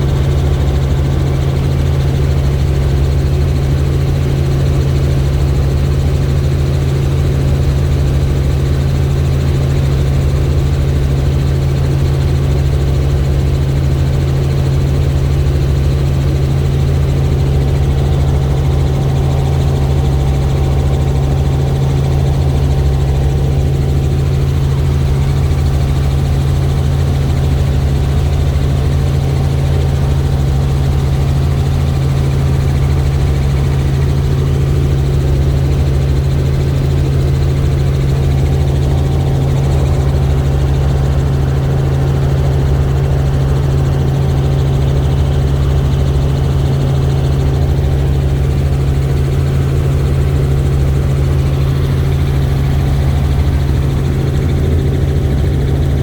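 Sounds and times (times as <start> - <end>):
helicopter rotor drone: 0.0 - 56.0.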